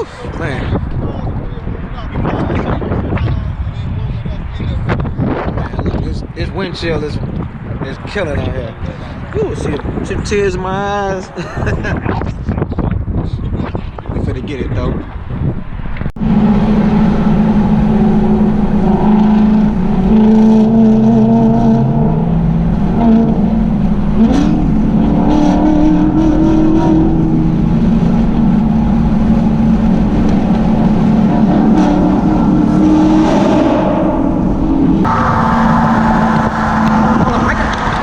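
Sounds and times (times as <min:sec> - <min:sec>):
car engine running: 0:16.2 - 0:38.0.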